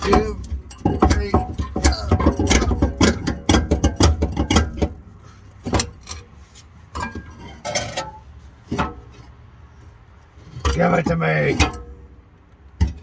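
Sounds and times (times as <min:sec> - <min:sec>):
metallic clanks: 0:00.0 - 0:09.3
exhaust parts rattling: 0:00.0 - 0:13.0.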